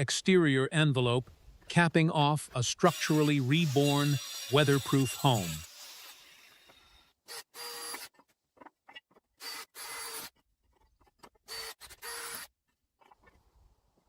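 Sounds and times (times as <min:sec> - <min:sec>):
power tool motor whirring: 0:02.8 - 0:08.2, 0:09.4 - 0:10.3, 0:11.5 - 0:12.5.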